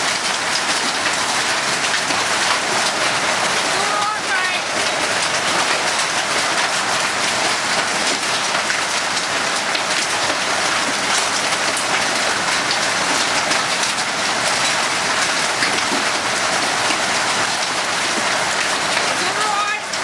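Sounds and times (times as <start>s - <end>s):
hailstones pelting down: 0.0s - 20.0s.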